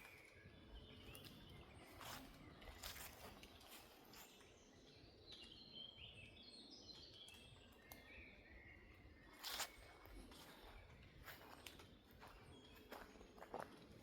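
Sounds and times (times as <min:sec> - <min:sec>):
soft footsteps on forest floor: 0:00.0 - 0:05.6, 0:08.9 - 0:14.0.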